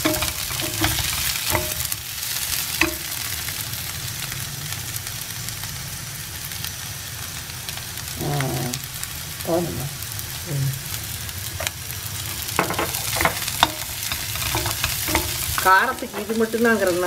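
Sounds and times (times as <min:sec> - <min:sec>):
spatula knocking against pan: 0:00.0 - 0:02.0, 0:02.8 - 0:03.2, 0:12.6 - 0:15.7
potatoes sizzling in oil: 0:00.0 - 0:17.0.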